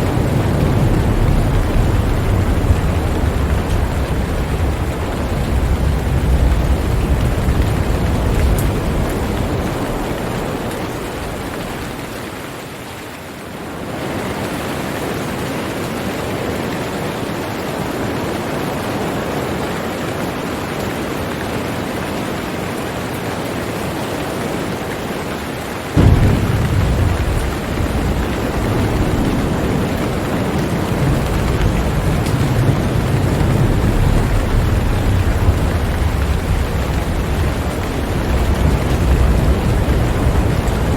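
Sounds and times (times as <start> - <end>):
thunder rumbling: 0.0 - 12.4, 26.0 - 40.9
rain hiss: 0.0 - 40.9.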